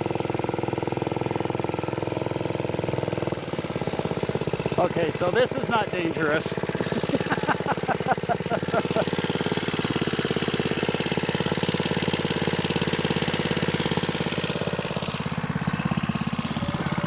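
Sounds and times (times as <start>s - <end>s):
small single-cylinder engine running: 0.0s - 17.0s.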